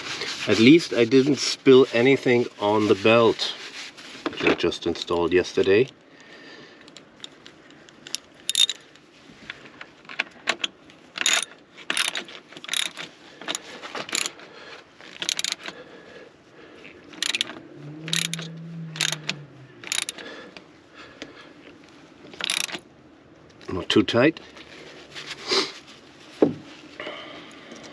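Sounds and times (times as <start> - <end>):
metallic clicks of hand tools: 6.8 - 8.8, 10.1 - 14.4, 15.1 - 15.8, 17.1 - 20.2, 22.3 - 22.8
ratchet clicking: 6.9 - 8.8, 10.6 - 14.4, 15.1 - 15.7, 17.1 - 20.2, 22.4 - 22.8
short low hum: 17.2 - 20.4.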